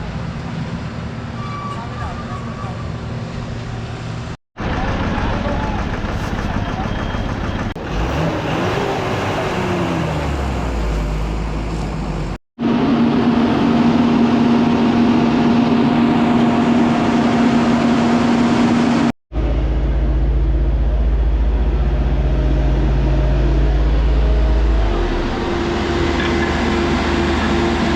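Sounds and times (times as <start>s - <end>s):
heavy engine droning: 0.0s - 27.9s
vehicle engine revving: 7.7s - 27.9s.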